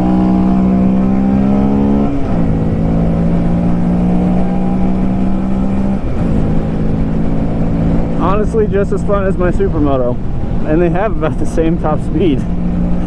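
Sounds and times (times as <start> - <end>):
motorcycle engine running: 0.0 - 13.0
wind rush: 0.0 - 13.0.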